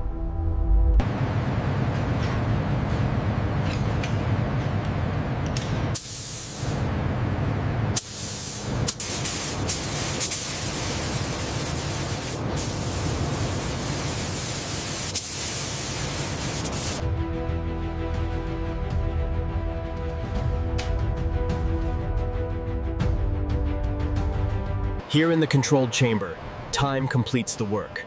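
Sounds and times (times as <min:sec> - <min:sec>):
low rumble: 0:00.0 - 0:02.6
steady spraying hiss: 0:08.0 - 0:17.0.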